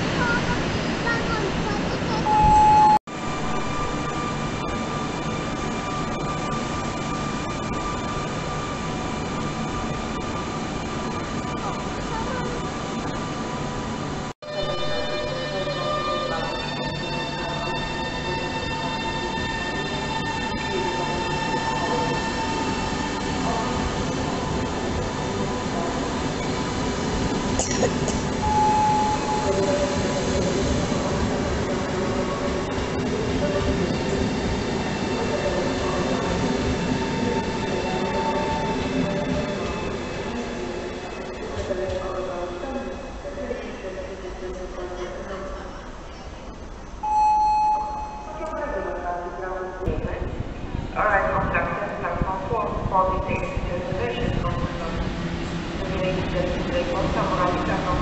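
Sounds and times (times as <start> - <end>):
train rolling rumble: 0.0 - 47.1, 48.1 - 58.0
brief high tone: 2.1 - 3.9, 28.4 - 29.9, 47.0 - 48.6.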